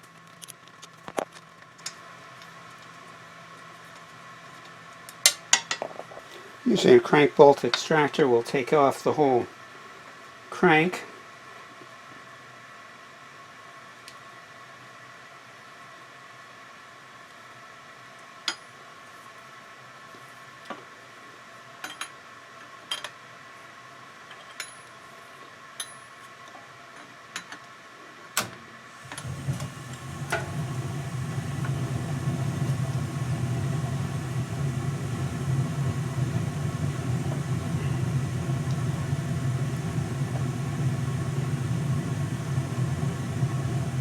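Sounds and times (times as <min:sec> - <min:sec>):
low machine hum: 0:28.7 - 0:44.0.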